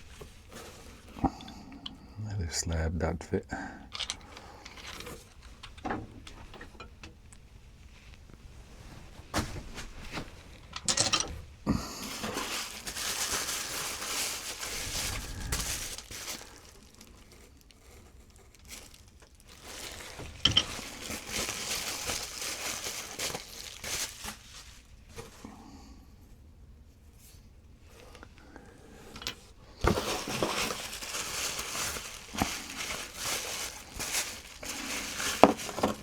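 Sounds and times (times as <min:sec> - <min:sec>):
packing wrap crinkling: 0:00.0 - 0:01.5, 0:11.7 - 0:25.5, 0:29.6 - 0:36.0.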